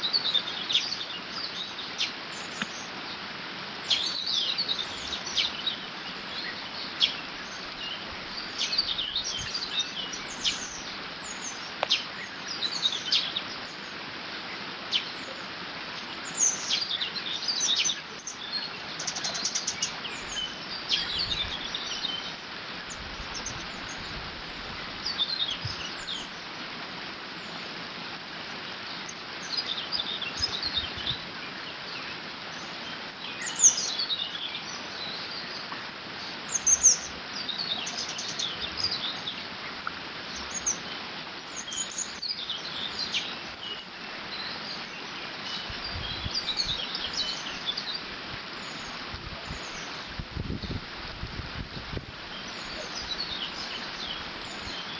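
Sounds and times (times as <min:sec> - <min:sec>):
small birds chirping and trilling: 0:00.0 - 0:26.6, 0:28.5 - 0:54.9.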